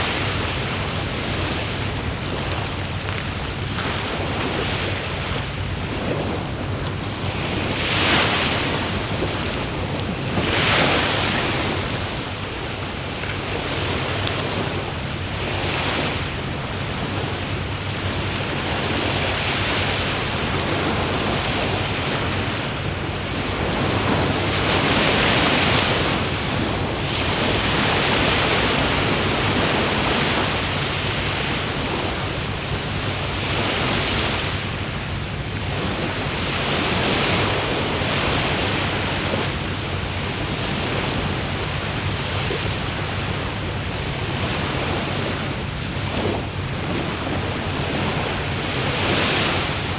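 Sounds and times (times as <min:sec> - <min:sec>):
wood fire burning: 0:00.0 - 0:15.6
fire crackles: 0:00.0 - 0:33.6, 0:37.8 - 0:49.9
constant high-pitched tone: 0:00.0 - 0:49.9.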